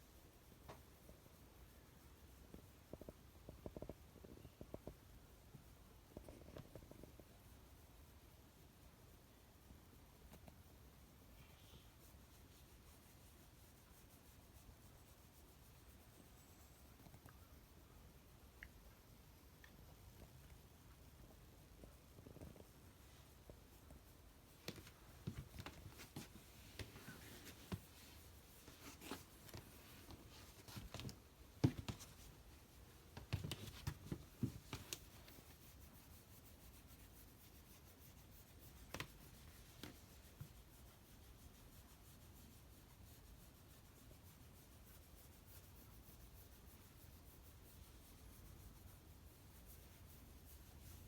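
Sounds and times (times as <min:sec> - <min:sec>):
hand rubbing dog fur: 0:04.8 - 0:51.0.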